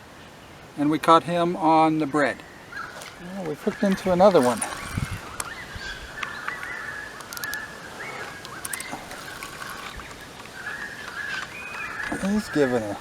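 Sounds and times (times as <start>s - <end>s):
faint reel clicks: 3.0s - 13.0s
fishing reel whining: 3.7s - 13.0s.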